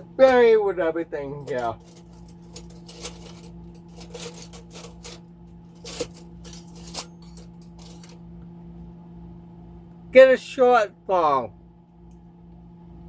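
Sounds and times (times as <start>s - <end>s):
steady low hum: 0.0s - 13.0s
metal utensils clinking in drawer: 1.4s - 8.2s.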